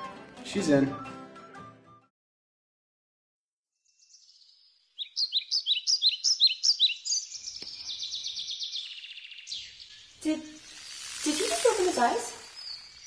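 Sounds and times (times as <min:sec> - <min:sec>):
songbird chirping and trilling: 0:03.7 - 0:13.0.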